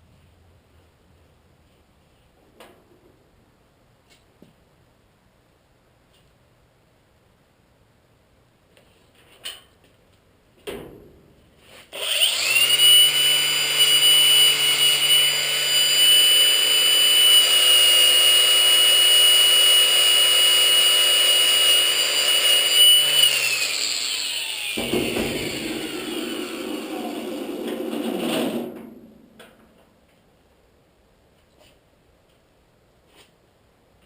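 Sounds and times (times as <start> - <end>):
power tool whining: 11.9 - 27.6
knocks: 24.8 - 25.8.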